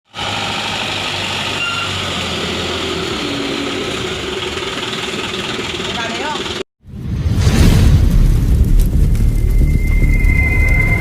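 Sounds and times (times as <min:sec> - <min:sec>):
diesel truck engine rattling: 0:00.2 - 0:06.6.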